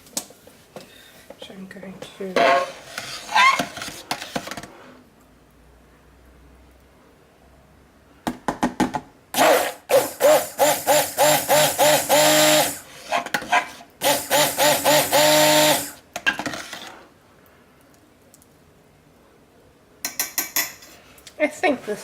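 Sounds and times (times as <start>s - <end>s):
stick blender mixing: 9.4s - 17.0s.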